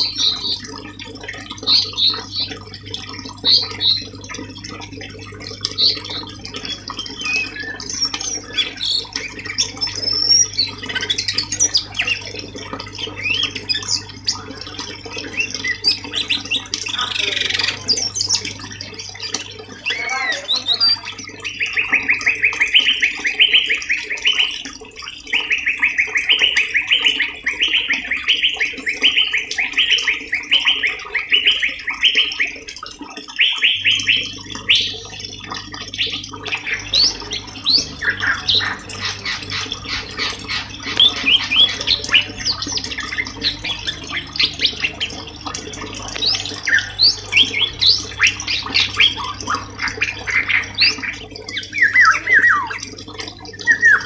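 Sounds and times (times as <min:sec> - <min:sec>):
bird chirps and calls: 0:00.0 - 0:00.8, 0:01.6 - 0:02.6, 0:03.4 - 0:04.2, 0:05.7 - 0:12.2, 0:15.2 - 0:22.3, 0:36.6 - 0:53.0
low background hum: 0:00.0 - 0:23.8, 0:33.7 - 0:54.0
songbird trilling: 0:05.7 - 0:12.2, 0:15.2 - 0:21.8, 0:36.5 - 0:52.9.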